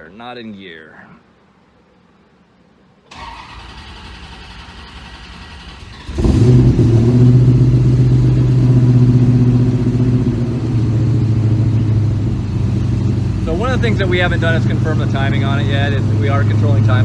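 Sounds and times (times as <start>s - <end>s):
engine cranking: 3.1s - 17.0s
car engine idling loudly: 4.5s - 17.0s.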